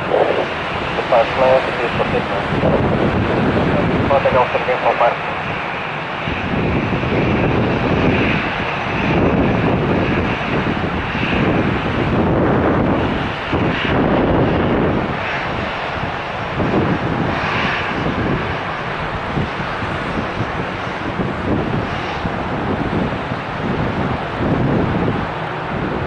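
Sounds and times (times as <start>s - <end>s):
jet engines at takeoff power: 0.0s - 26.0s.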